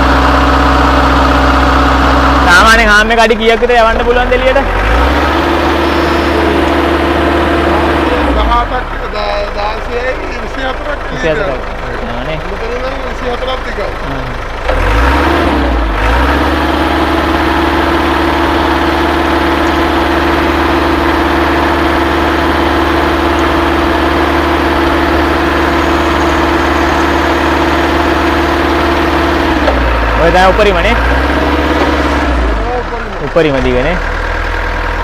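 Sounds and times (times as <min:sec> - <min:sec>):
truck engine hum: 0:00.0 - 0:35.0
hydraulic pump whine: 0:04.3 - 0:09.2, 0:14.6 - 0:33.2.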